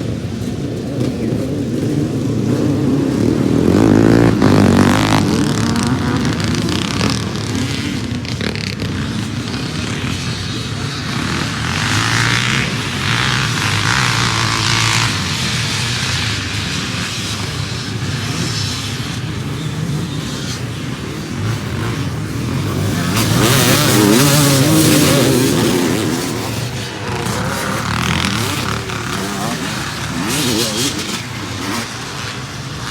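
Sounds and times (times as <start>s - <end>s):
motorcycle engines revving: 0.0s - 32.9s.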